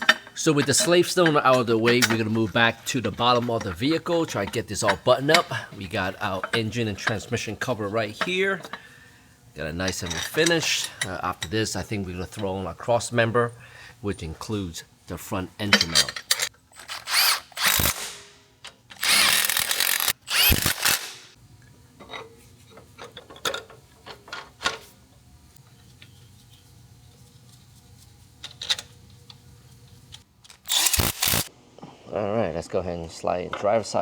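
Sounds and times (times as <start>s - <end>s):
tools and parts clicking: 15.7s - 21.4s, 22.0s - 24.9s, 28.4s - 29.4s, 30.1s - 31.5s
power tool driving bolts: 16.8s - 21.4s, 30.5s - 31.5s.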